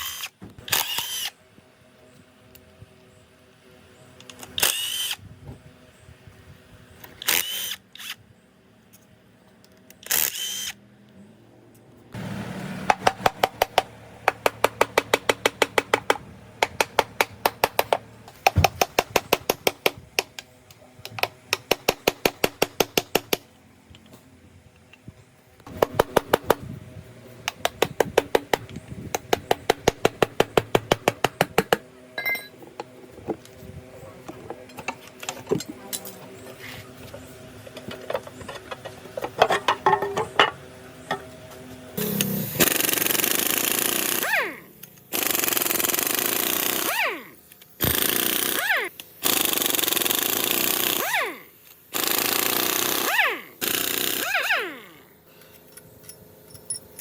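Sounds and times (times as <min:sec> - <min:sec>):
motor hum: 0:00.0 - 0:57.0
impact wrench hammering: 0:12.8 - 0:20.4, 0:21.1 - 0:23.4.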